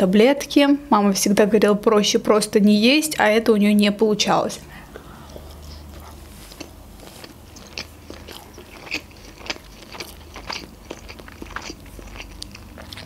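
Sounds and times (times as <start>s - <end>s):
chewing sushi with crunches: 4.8s - 13.0s.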